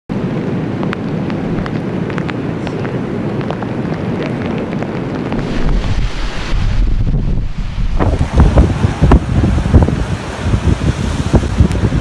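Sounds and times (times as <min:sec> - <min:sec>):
raindrops ticking: 0:00.1 - 0:09.2
strong wind rumble: 0:00.1 - 0:12.0.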